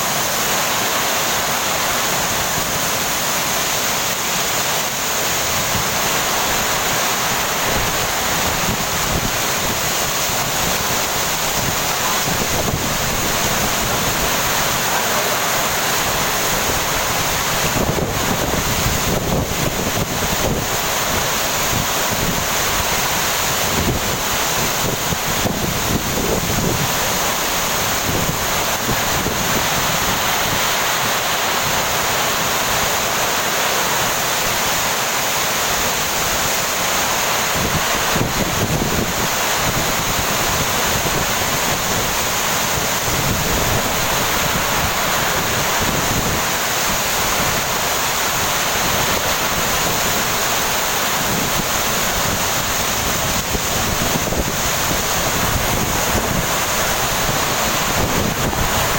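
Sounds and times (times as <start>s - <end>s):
heavy rain pouring: 0.0s - 58.9s
wind buffeting microphone: 16.4s - 30.7s, 37.5s - 47.8s, 51.2s - 58.9s.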